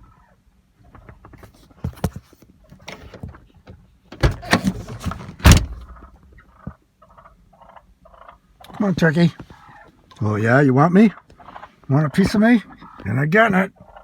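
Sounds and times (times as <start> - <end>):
knocks and rattles against a car: 2.8 - 6.1
loud bangs: 4.2 - 6.1.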